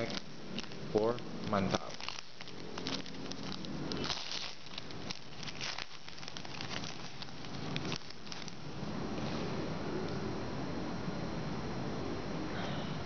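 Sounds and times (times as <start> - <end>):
wrapper tearing and crinkling: 0.0 - 8.7.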